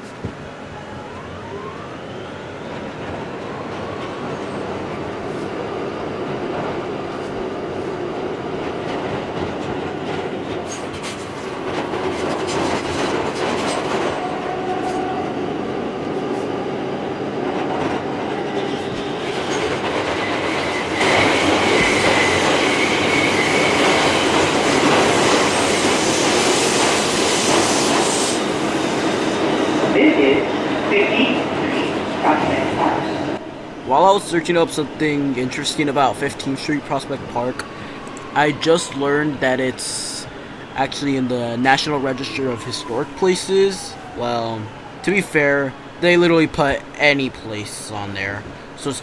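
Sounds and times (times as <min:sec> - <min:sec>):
subway train rumbling on rails: 0:00.0 - 0:49.0
high wheel squeal: 0:18.8 - 0:24.7.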